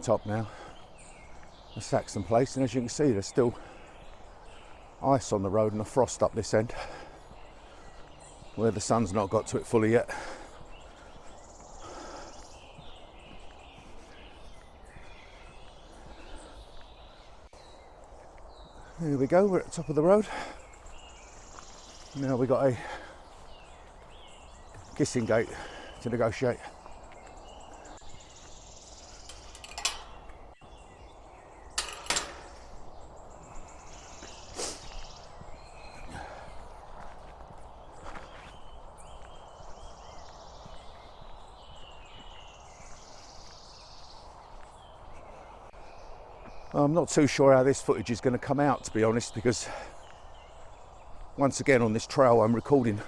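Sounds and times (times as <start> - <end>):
faint bird calls: 0.0 - 46.8
footsteps on road: 0.0 - 47.3, 48.5 - 53.0
footsteps: 27.1 - 30.6
gate clanking against frame: 29.2 - 30.5, 31.8 - 32.8.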